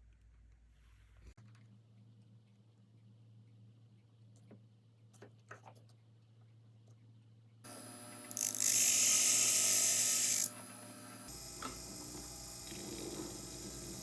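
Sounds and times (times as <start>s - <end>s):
high-pitched power tool: 7.7s - 14.0s.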